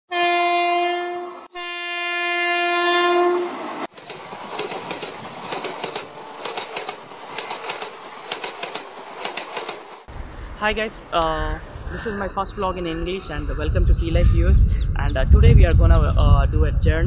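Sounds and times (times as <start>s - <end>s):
train horn: 0.1s - 3.7s
train wheels clattering over rail joints: 3.9s - 10.1s.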